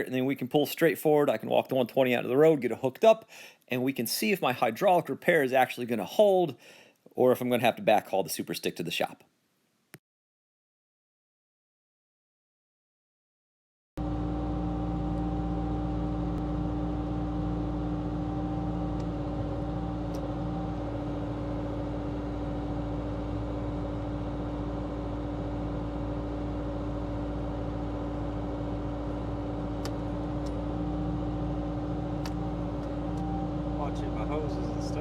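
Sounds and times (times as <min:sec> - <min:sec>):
diesel engine idling: 0:14.0 - 0:35.0.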